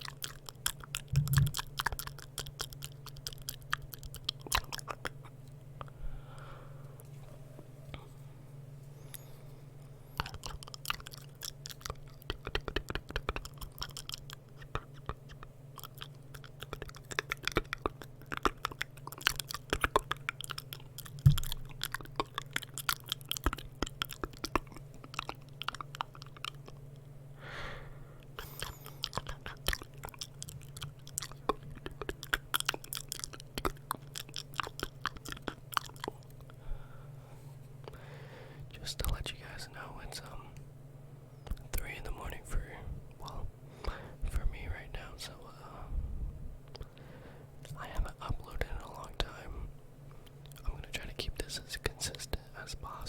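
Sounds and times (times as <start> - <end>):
wet mouth clicks and smacks: 0.0 - 6.0, 10.2 - 27.1, 28.2 - 36.6, 41.4 - 42.4, 50.2 - 53.0
steady low hum: 0.0 - 53.0.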